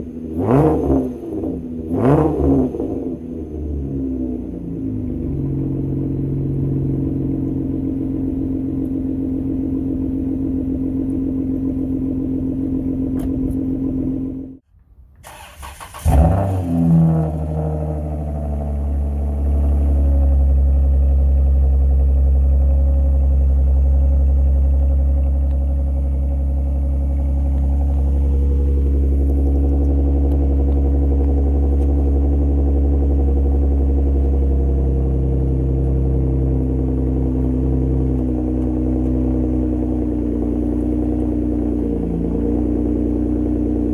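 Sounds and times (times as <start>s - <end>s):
car engine running: 0.0s - 14.6s, 15.4s - 43.9s
engine restarting and revving: 0.3s - 3.2s, 15.2s - 20.6s, 25.2s - 43.9s.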